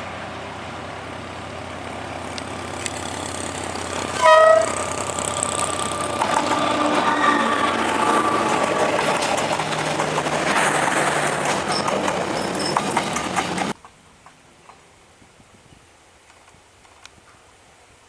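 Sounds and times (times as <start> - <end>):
train rumbling past: 0.0 - 13.8
wheel clatter on track: 2.4 - 13.8.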